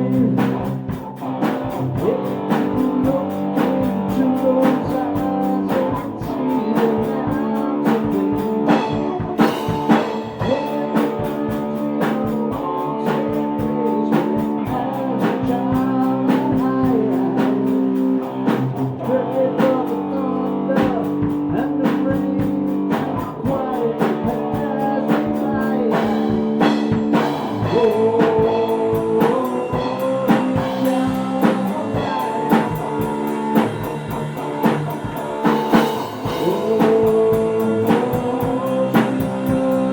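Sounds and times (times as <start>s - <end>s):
person singing: 0.0s - 39.9s
rock band playing: 0.0s - 39.9s.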